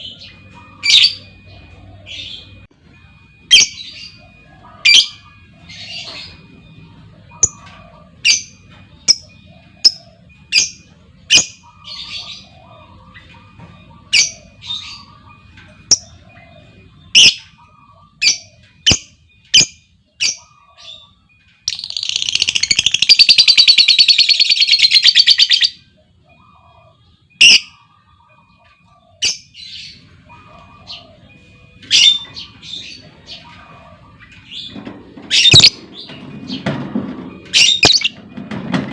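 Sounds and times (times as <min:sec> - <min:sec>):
lovebird chirping and trilling: 0:07.3 - 0:26.7, 0:27.4 - 0:28.4, 0:29.2 - 0:36.7, 0:37.4 - 0:38.2.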